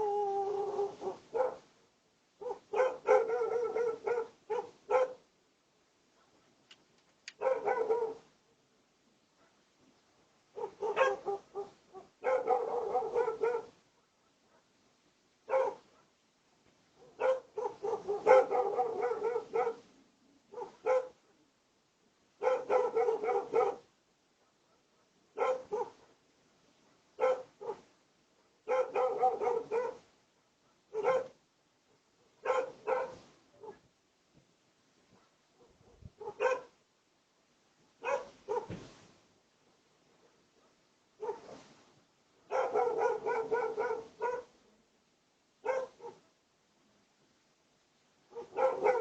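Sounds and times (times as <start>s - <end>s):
dog barking: 0.7s - 1.7s, 2.4s - 5.3s, 6.1s - 6.5s, 7.4s - 8.3s, 9.4s - 9.6s, 10.5s - 14.8s, 15.4s - 16.2s, 17.0s - 19.9s, 20.5s - 21.4s, 22.4s - 26.2s, 27.2s - 27.9s, 28.5s - 33.9s, 35.1s - 36.8s, 38.0s - 38.8s, 40.2s - 41.7s, 42.4s - 44.6s, 45.6s - 46.4s, 48.3s - 49.0s.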